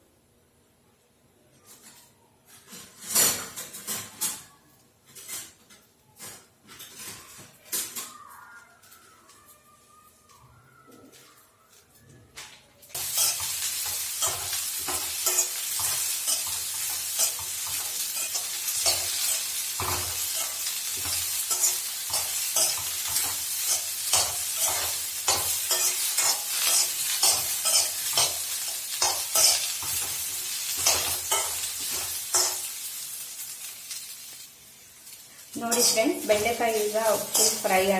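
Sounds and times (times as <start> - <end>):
okra sizzling in oil: 12.9 - 37.9
utensil scraping and clicking on pan: 13.0 - 32.7.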